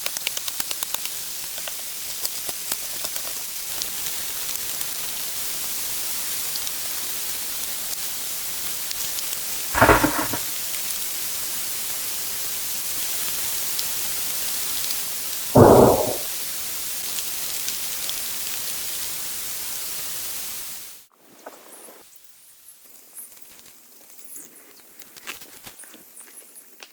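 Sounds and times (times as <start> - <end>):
short louder sounds: 9.8 - 10.5, 15.6 - 16.3.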